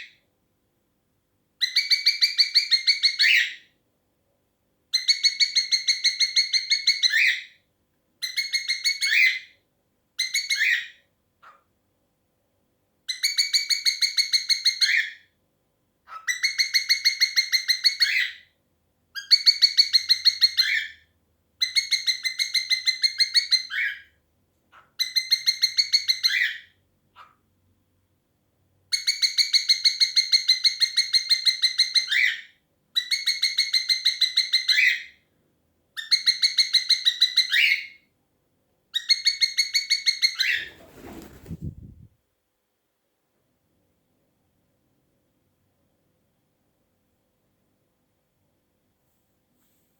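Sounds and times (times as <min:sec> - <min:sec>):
cockatiel chirping calls: 0:01.6 - 0:03.6, 0:05.0 - 0:07.5, 0:08.2 - 0:09.5, 0:10.2 - 0:11.6, 0:13.1 - 0:15.2, 0:16.1 - 0:18.4, 0:19.2 - 0:21.0, 0:21.6 - 0:24.1, 0:24.7 - 0:27.4, 0:28.9 - 0:35.2, 0:36.0 - 0:38.0, 0:39.0 - 0:41.6.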